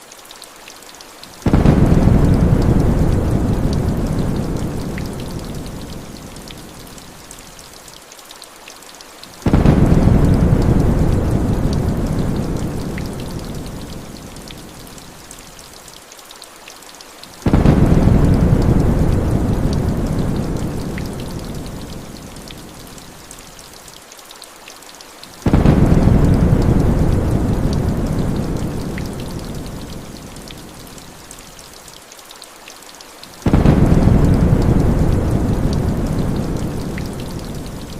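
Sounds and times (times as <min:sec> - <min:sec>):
heavy rain: 0:00.0 - 0:37.9
thunder rumbling: 0:01.4 - 0:06.2, 0:09.5 - 0:14.0, 0:17.5 - 0:21.9, 0:25.4 - 0:30.1, 0:33.4 - 0:37.9.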